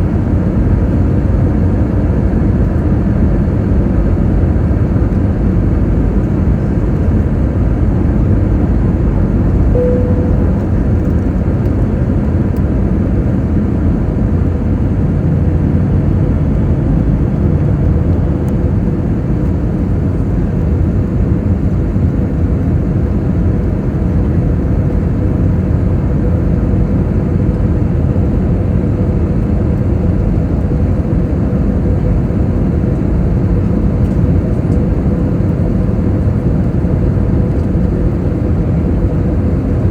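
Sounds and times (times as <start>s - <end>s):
airliner engines and airflow rumble: 0.0s - 39.9s
faint steady tone: 9.7s - 11.4s.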